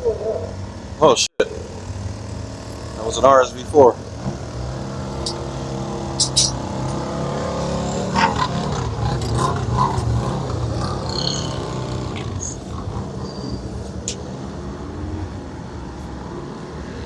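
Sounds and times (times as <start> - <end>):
vehicle engine running: 1.4 - 14.3
short high chirps: 6.2 - 6.6.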